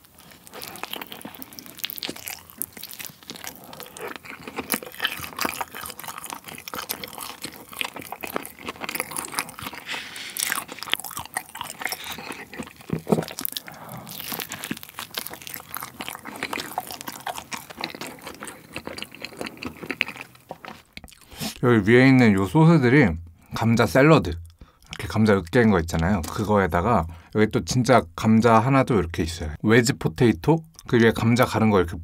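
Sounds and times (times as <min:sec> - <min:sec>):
moist chewing: 0:00.0 - 0:21.6
crust crunching while chewing: 0:00.0 - 0:21.7.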